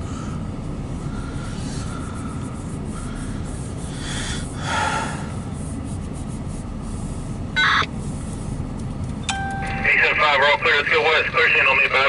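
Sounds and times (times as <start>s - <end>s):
breathy sound near microphone: 0.0s - 5.5s.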